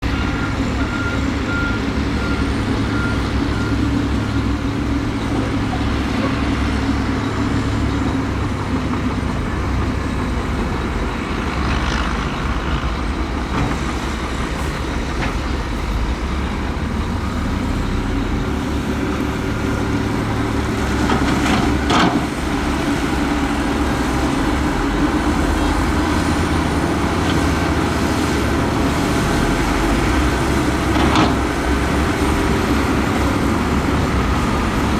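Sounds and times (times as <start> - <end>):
diesel engines running under load: 0.0 - 34.9
reversing alarm beeping: 0.1 - 4.3.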